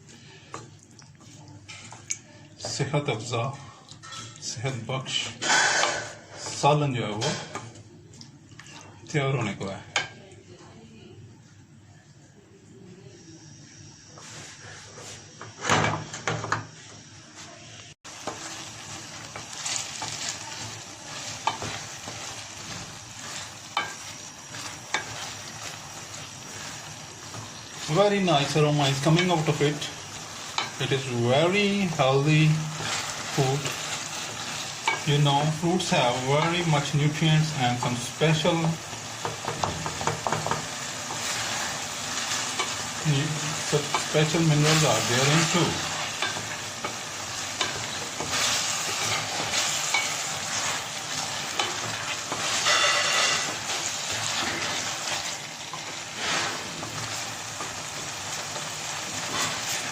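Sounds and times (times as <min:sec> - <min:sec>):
curry sizzling in a pot: 0:00.0 - 0:10.3, 0:13.0 - 0:59.9
spoon scraping a pan: 0:18.2 - 0:31.0, 0:39.2 - 0:57.8.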